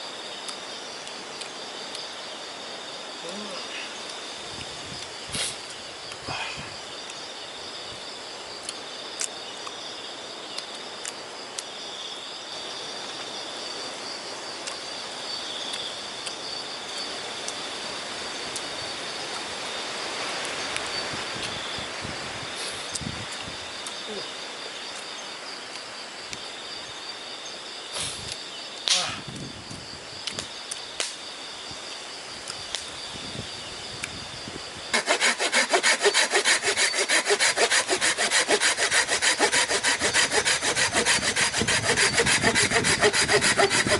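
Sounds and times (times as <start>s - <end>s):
night insects trilling: 0.0s - 43.9s
fast repeating rasping: 34.9s - 43.9s.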